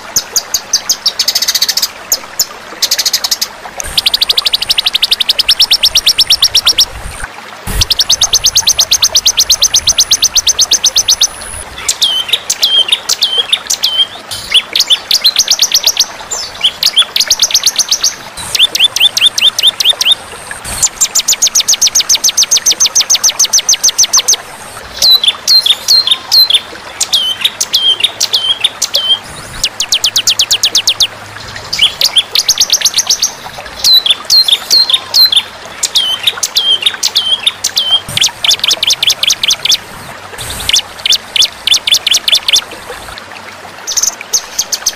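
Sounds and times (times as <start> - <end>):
songbird buzzy trills: 0.1 - 43.2
songbird sharp chirps: 7.7 - 24.3.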